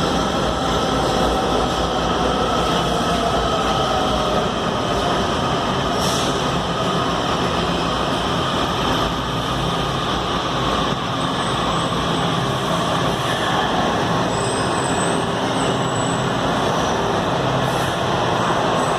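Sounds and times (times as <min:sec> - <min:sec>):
train wheels rumbling on rail: 0:00.0 - 0:18.9.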